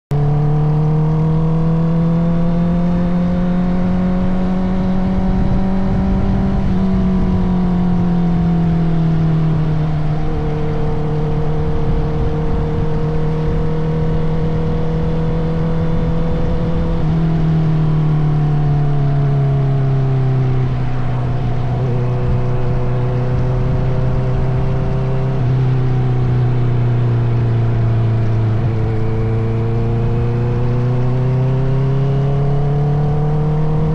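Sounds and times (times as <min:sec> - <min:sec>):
motorcycle engine running: 0:00.2 - 0:33.9.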